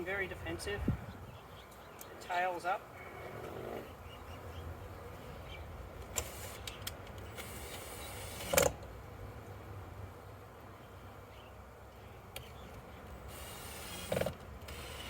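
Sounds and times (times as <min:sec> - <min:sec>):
honey bees humming: 0:00.0 - 0:15.0
light clicks: 0:01.7 - 0:02.2.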